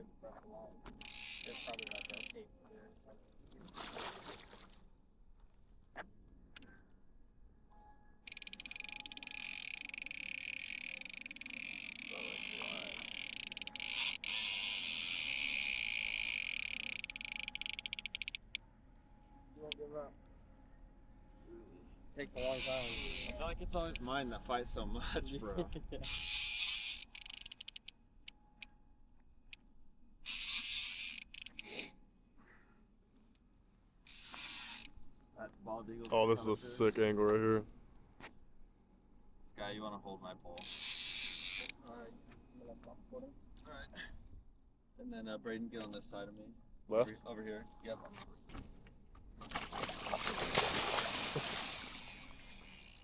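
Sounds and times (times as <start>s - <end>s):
fishing reel clicks: 1.0s - 2.4s, 8.3s - 18.6s, 22.4s - 24.0s, 26.0s - 27.9s, 30.2s - 31.9s, 34.1s - 35.0s, 40.6s - 41.8s, 51.8s - 53.0s
fishing reel drag buzzing: 1.0s - 2.4s, 8.3s - 18.6s, 22.4s - 24.0s, 26.0s - 27.9s, 30.2s - 31.9s, 34.1s - 35.0s, 40.6s - 41.8s, 50.6s - 53.0s.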